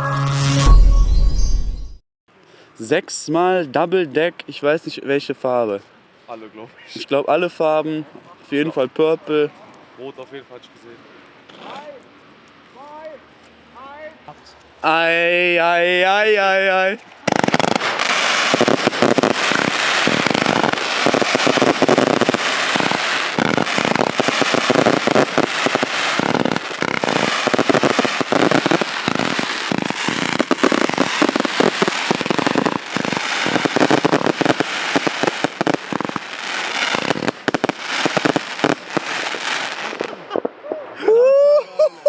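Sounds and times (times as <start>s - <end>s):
fireworks barrage of rapid bangs: 17.3s - 40.2s.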